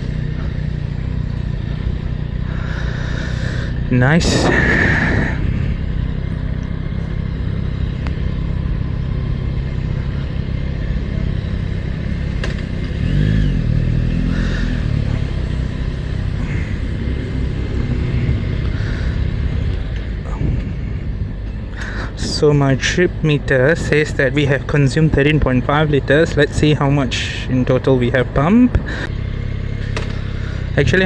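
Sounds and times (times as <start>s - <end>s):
motorcycle engine rumbling: 0.0s - 31.0s.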